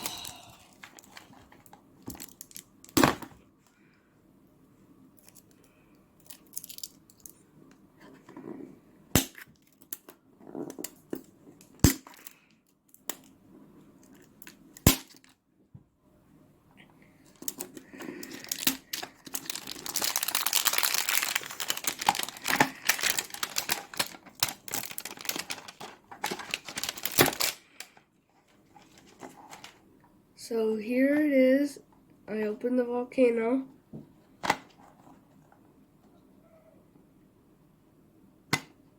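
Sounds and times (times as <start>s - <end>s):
plastic packaging crinkling and tearing: 0.0s - 3.2s, 6.2s - 7.4s, 11.7s - 12.4s, 17.4s - 28.0s
sharp plastic snaps: 38.5s - 38.8s.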